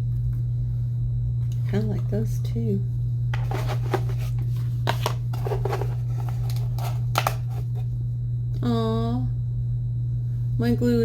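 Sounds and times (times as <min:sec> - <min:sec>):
steady low hum: 0:00.0 - 0:11.0
plastic packaging clicks and crinkles: 0:04.9 - 0:07.8.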